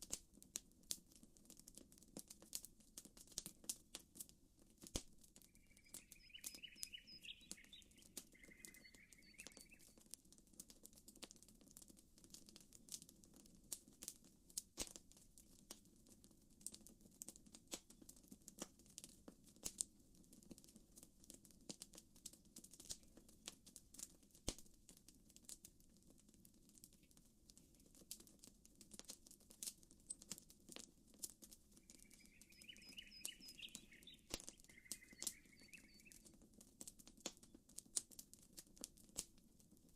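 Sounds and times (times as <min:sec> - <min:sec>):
faint campfire crackling: 0:00.0 - 0:39.9
bird chirping trill: 0:05.5 - 0:09.9, 0:31.8 - 0:36.2.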